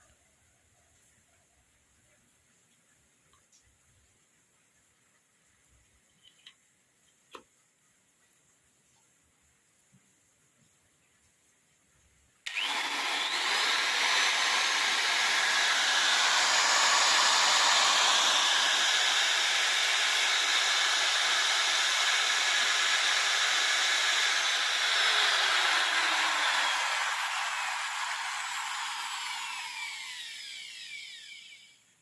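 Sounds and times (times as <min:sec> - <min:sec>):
electric grinder motor whining: 0:12.5 - 0:31.7.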